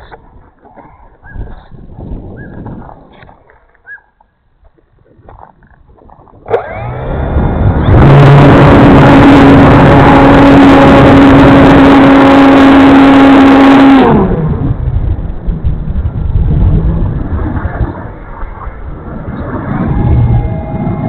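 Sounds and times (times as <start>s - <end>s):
wind noise on microphone: 0.0s - 21.0s
model plane motor whine: 6.5s - 14.4s.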